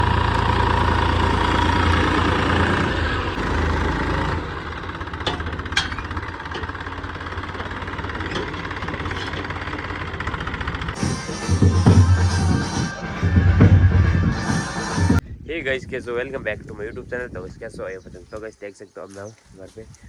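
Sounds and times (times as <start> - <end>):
tractor engine idling: 0.0 - 15.2.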